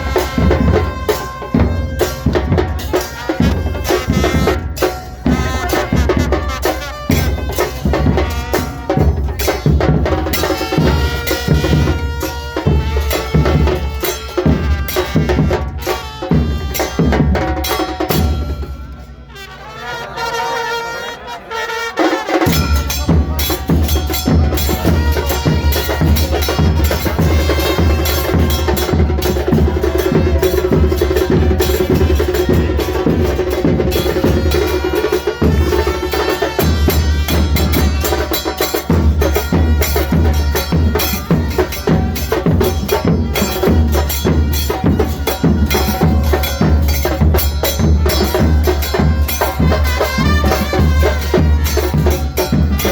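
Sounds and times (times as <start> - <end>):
music with drums and percussion: 0.0 - 19.6, 21.6 - 52.9.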